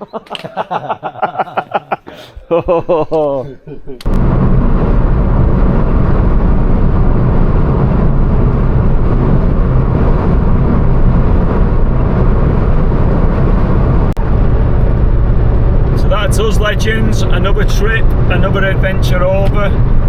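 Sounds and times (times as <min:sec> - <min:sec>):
car road and engine noise: 0:04.0 - 0:20.0.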